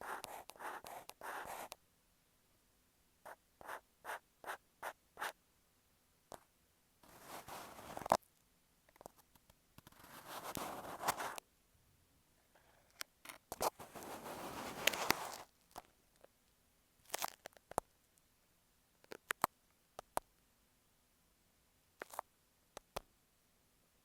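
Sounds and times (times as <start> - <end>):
fingertips scratching microphone: 7.0 - 8.2, 9.8 - 11.4, 13.5 - 15.5.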